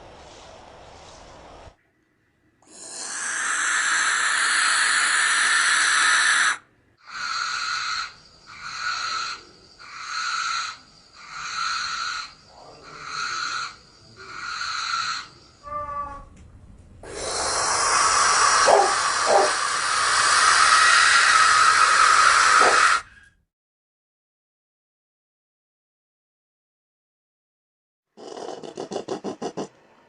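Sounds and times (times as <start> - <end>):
breathy hissing screech: 2.6 - 15.8, 17.0 - 23.3, 28.2 - 29.7.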